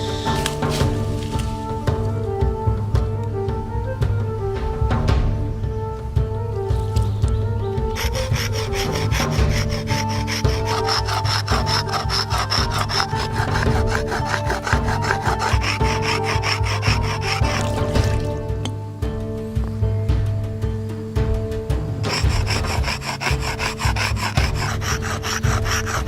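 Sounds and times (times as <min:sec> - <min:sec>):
hand tool scraping wood: 0:00.0 - 0:01.9, 0:07.9 - 0:18.5, 0:22.0 - 0:26.0
background music: 0:00.0 - 0:26.0.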